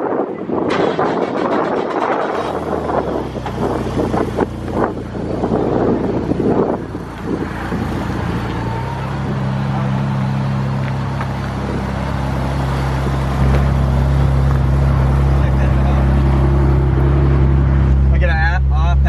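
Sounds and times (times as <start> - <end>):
car engine idling: 0.8 - 19.0.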